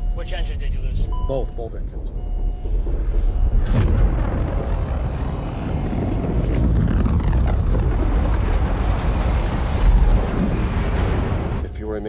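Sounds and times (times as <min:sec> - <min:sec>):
low rumble of rushing air: 0:02.8 - 0:11.8.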